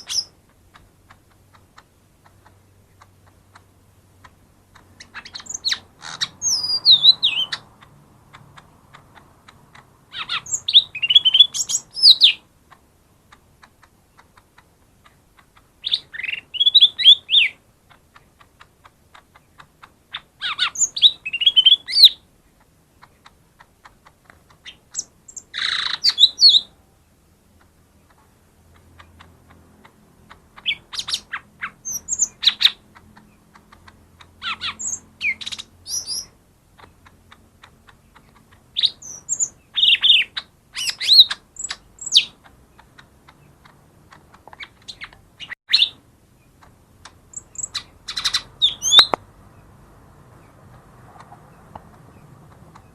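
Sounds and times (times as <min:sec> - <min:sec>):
bird whistled song: 0:00.0 - 0:00.3, 0:05.0 - 0:07.6, 0:10.1 - 0:12.4, 0:15.8 - 0:17.6, 0:20.1 - 0:22.2, 0:24.6 - 0:26.7, 0:30.6 - 0:32.8, 0:34.4 - 0:36.4, 0:38.7 - 0:42.4, 0:44.6 - 0:46.0, 0:47.3 - 0:49.2.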